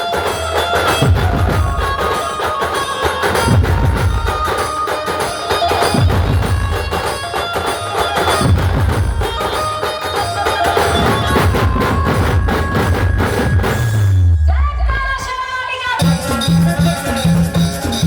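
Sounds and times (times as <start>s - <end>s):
dense drumming with bass hits: 8.4s - 9.4s, 11.0s - 14.4s.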